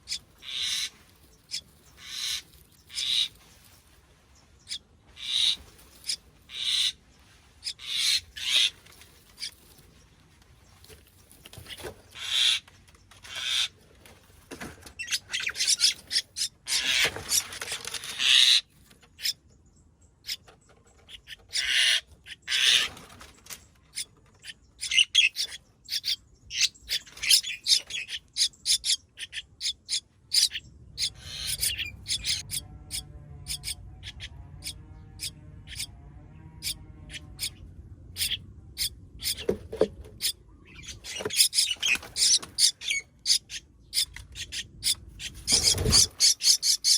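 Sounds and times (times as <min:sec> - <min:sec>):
nestling birds chirping: 0:00.0 - 0:46.9
low hum: 0:30.6 - 0:41.1.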